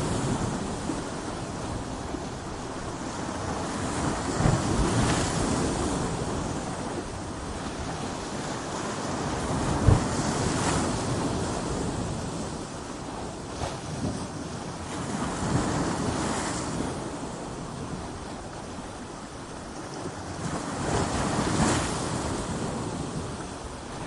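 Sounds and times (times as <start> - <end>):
ocean waves breaking on rocks: 0.0 - 24.0.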